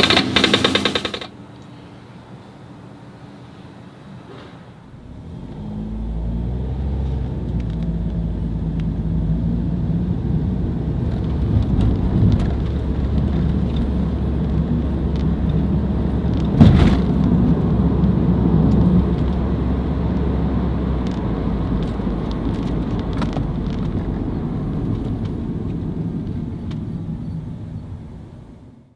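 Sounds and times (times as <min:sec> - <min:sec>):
sharp knock: 0:00.0 - 0:01.3, 0:16.6 - 0:17.2
car engine and road rumble: 0:04.8 - 0:28.9.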